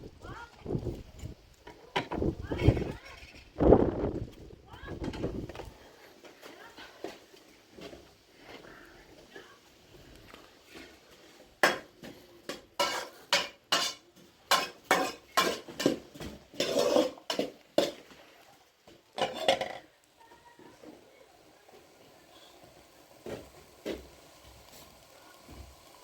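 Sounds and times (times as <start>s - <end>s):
dishes and pots clinking: 11.6s - 18.3s, 18.9s - 20.0s
dishes rattling: 19.2s - 19.9s.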